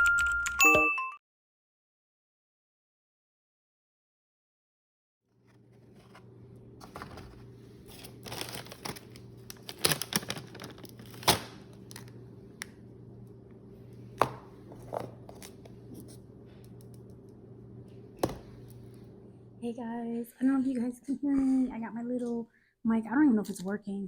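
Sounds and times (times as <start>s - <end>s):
steady low hum: 5.4s - 22.7s
food packaging crinkling: 5.5s - 12.7s
packaging tearing: 6.8s - 12.2s.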